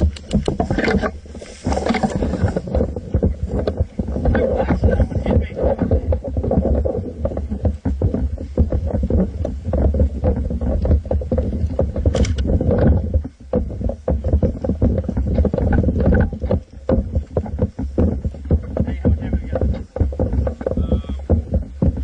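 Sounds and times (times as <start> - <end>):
camera handling rumble: 0.0 - 22.0
wind noise: 0.0 - 22.0
rifle knocks and clicks: 12.1 - 12.5.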